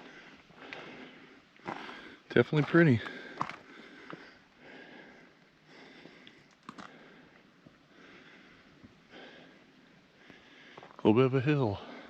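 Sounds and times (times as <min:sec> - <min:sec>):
heavy breathing: 0:00.0 - 0:02.3, 0:03.0 - 0:11.0
footstep clicks: 0:01.6 - 0:04.3.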